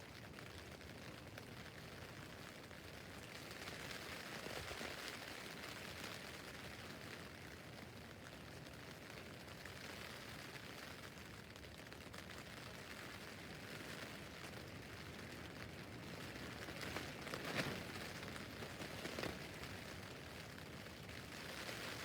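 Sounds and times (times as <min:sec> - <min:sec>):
rain on tent fabric: 0:00.0 - 0:22.0.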